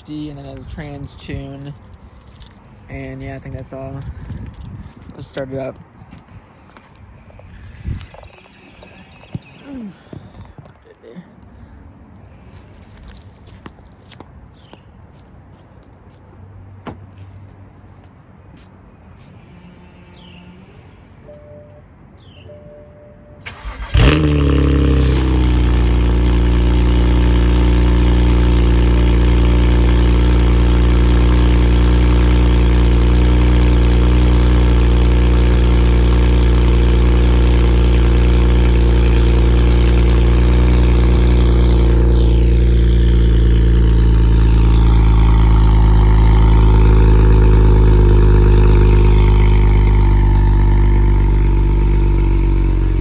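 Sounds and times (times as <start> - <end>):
car engine cranking: 23.4 - 53.0
car engine starting and idling: 23.4 - 53.0.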